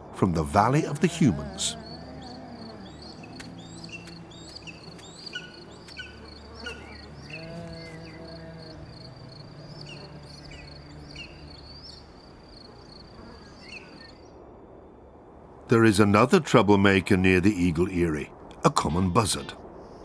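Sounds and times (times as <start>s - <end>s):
high-pitched insect trill: 0.8s - 14.1s.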